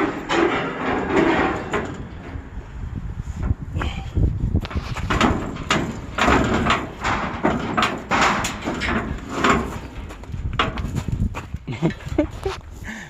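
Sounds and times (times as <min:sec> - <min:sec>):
heavy metal parts scraping and banging: 0:00.0 - 0:12.6.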